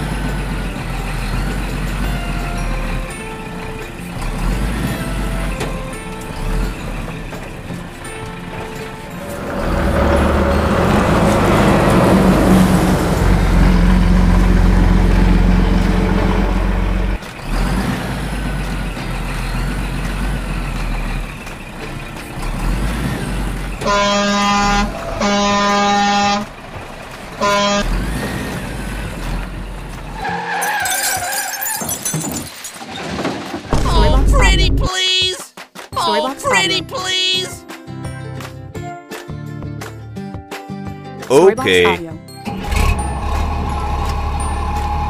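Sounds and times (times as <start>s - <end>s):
truck engine rumbling: 0.0s - 35.2s, 41.3s - 45.0s
truck horn blasts: 23.8s - 26.6s, 27.3s - 28.2s.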